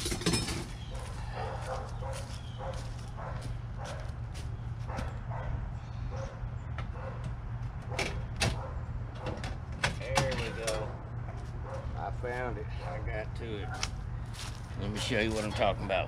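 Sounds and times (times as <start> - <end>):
dog barking: 0.9 - 4.2, 4.9 - 7.2, 7.9 - 8.9, 11.6 - 12.0.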